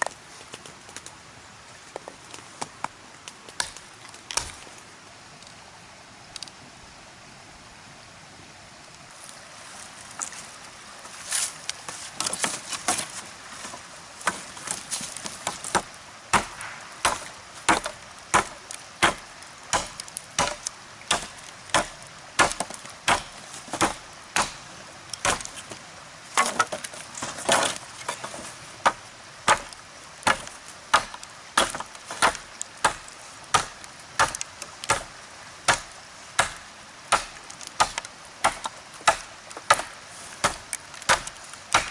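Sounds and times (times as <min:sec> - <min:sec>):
axe chopping wood: 0:14.2 - 0:25.7, 0:26.4 - 0:35.1, 0:35.7 - 0:41.9.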